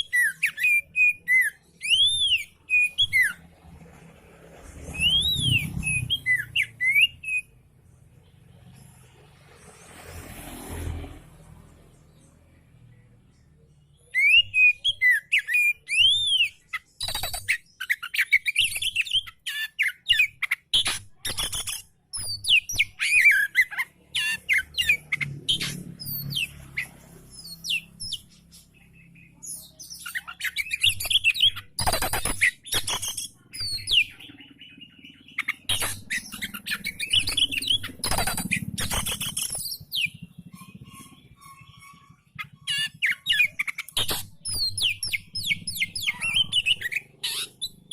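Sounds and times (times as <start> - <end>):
songbird singing: 0.0 - 3.7, 4.7 - 10.5, 11.3 - 47.9.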